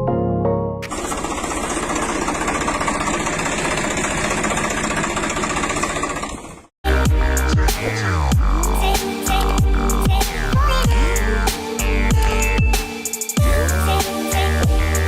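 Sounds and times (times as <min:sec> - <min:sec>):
engine running with rapid clatter: 0:00.8 - 0:06.8
electronic music with deep bass: 0:06.9 - 0:15.0.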